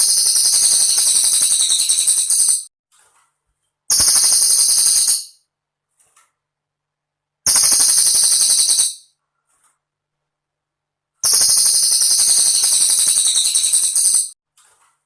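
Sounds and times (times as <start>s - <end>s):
songbird rattling trills: 0.0s - 2.7s, 11.2s - 14.3s.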